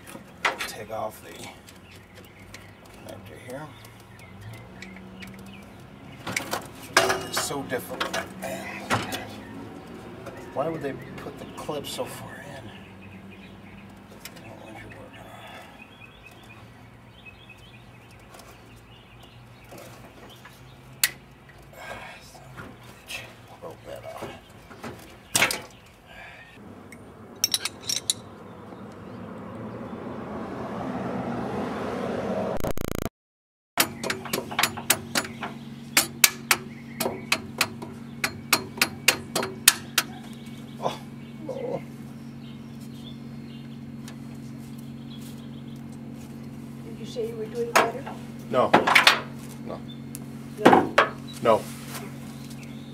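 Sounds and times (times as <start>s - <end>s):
small birds chirping: 0.0s - 30.3s, 33.8s - 52.9s
sharp metal knocks: 27.4s - 28.3s, 33.8s - 40.1s.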